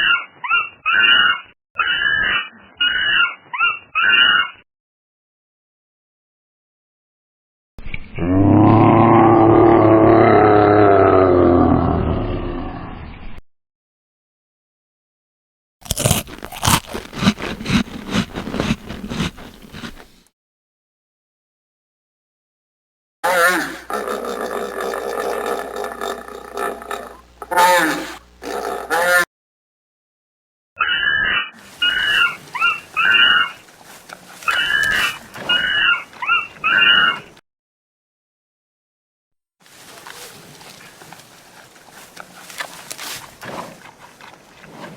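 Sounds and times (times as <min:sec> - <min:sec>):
animal chewing crunchy food: 0:15.8 - 0:20.3, 0:31.6 - 0:37.2, 0:39.7 - 0:44.9
animal giving short loud calls: 0:23.2 - 0:25.8, 0:27.5 - 0:29.2.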